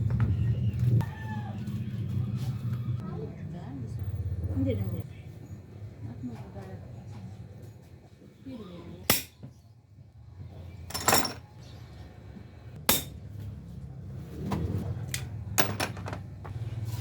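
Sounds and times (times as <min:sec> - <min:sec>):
metal tools clinking: 0:10.8 - 0:11.5, 0:15.1 - 0:16.3
sharp metal strikes: 0:12.8 - 0:13.2.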